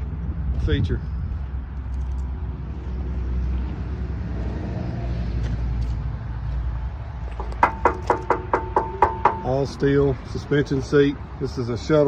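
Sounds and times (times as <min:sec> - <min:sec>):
tractor diesel engine idling: 0:07.4 - 0:10.1.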